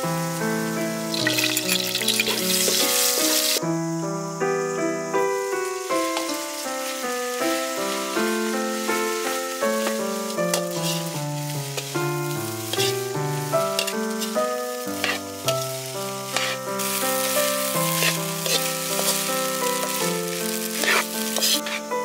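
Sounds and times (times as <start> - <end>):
rice sizzling in a wok: 0.0 - 22.0
metal ladle scraping pan: 1.2 - 3.6, 9.8 - 19.3, 20.6 - 21.8
melodic background music: 5.0 - 22.0.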